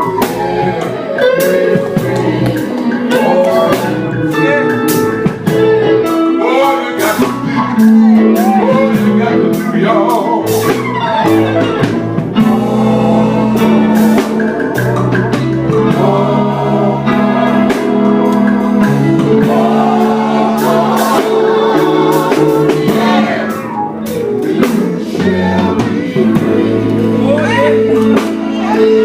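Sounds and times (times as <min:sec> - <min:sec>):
drum beat: 0:00.0 - 0:06.3, 0:07.0 - 0:29.0
group singing gospel: 0:00.0 - 0:29.0
instrumental backing: 0:00.0 - 0:29.0.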